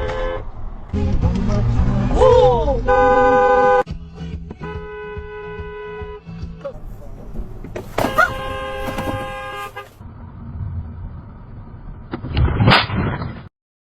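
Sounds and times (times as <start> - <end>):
car horn blast: 0.0 - 0.5, 2.9 - 3.8, 4.6 - 10.0
road and engine noise: 0.0 - 13.5
sharp knocks: 7.7 - 10.0.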